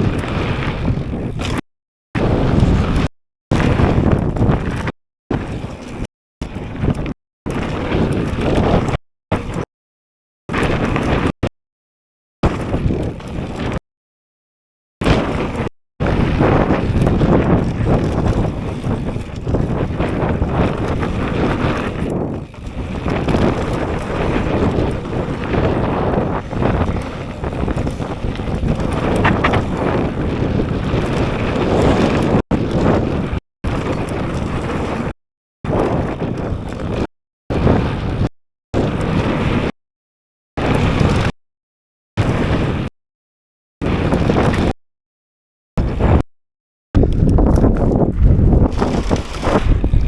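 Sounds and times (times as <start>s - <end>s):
bike tyre and trail noise: 0.0s - 1.6s, 2.2s - 9.7s, 10.5s - 11.4s, 12.4s - 13.8s, 15.0s - 39.7s, 40.6s - 41.3s, 42.2s - 42.9s, 43.8s - 44.7s, 47.0s - 50.0s
wind buffeting microphone: 0.0s - 1.6s, 2.2s - 9.6s, 15.0s - 35.1s, 35.7s - 39.7s, 40.6s - 41.3s, 42.2s - 42.9s, 43.8s - 44.7s, 45.8s - 46.2s, 47.0s - 50.0s.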